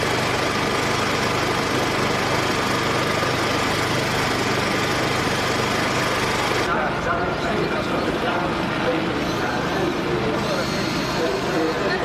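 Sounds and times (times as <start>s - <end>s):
racing car engine running: 0.0s - 6.8s.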